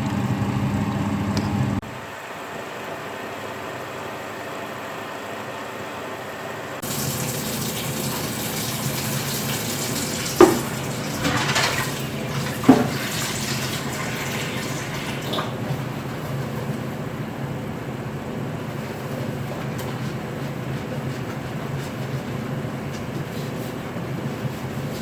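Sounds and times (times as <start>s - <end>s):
water running from a tap: 6.8s - 15.8s.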